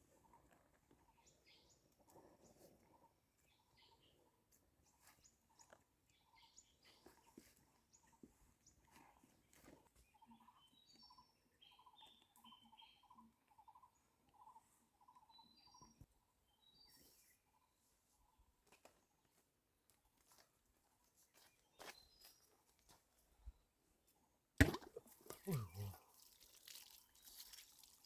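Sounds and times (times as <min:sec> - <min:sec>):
birds chirping: 0:25.3 - 0:26.1.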